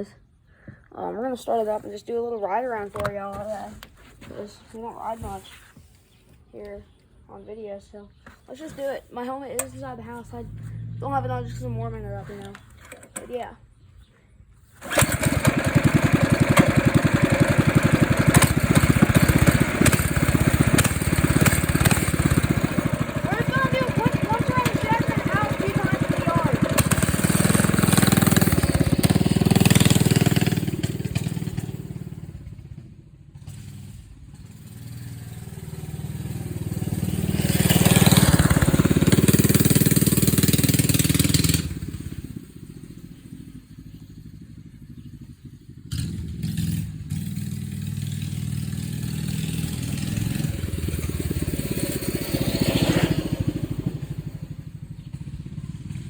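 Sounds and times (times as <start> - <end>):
minibike engine running: 14.8 - 56.0.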